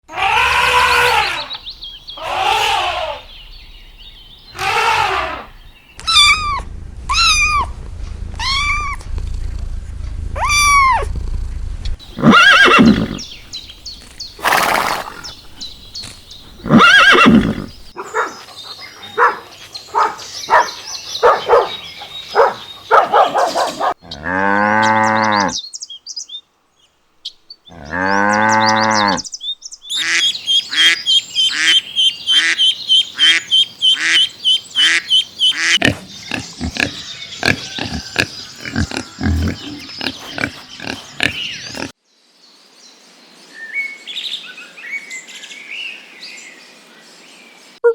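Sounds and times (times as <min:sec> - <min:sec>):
drawn-out falling animal cries: 0:00.1 - 0:01.6, 0:02.2 - 0:03.4, 0:04.5 - 0:09.2, 0:10.4 - 0:11.1, 0:12.1 - 0:13.3, 0:16.6 - 0:17.9, 0:29.9 - 0:41.9
short rising-and-falling calls: 0:04.5 - 0:07.8, 0:29.9 - 0:35.8
short chattering calls: 0:29.9 - 0:41.9.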